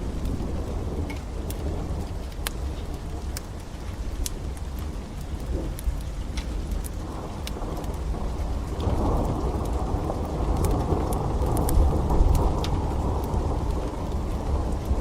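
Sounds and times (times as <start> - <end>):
steady rain: 0.0 - 15.0
wood fire crackling: 0.0 - 15.0
thunder rolling: 7.0 - 15.0.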